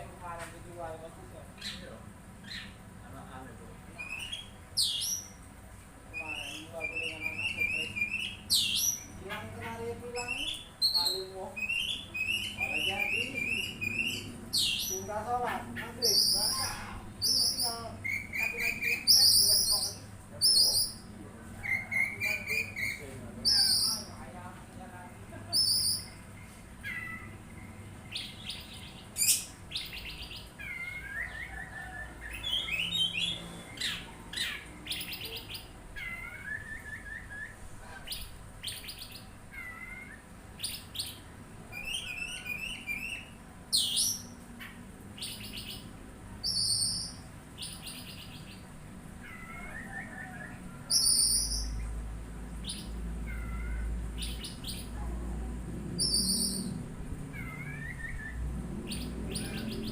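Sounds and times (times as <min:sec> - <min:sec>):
bird singing whistles and trills: 0:21.7 - 0:24.1, 0:25.6 - 0:26.2, 0:28.1 - 0:39.2, 0:46.4 - 0:48.6, 0:49.6 - 0:51.8, 0:56.0 - 0:56.8
low hum: 0:51.6 - 0:59.9.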